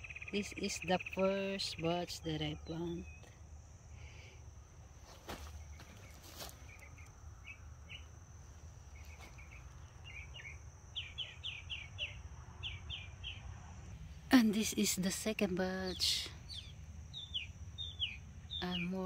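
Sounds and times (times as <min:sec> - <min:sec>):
high insect hum: 0:00.0 - 0:19.0
small bird chirping: 0:05.5 - 0:08.1, 0:08.9 - 0:13.5, 0:15.8 - 0:19.0.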